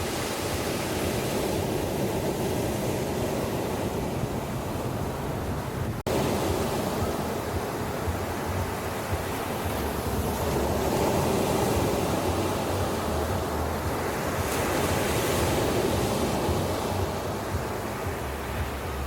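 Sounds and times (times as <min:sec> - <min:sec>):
waves breaking on a beach: 0:00.0 - 0:19.0.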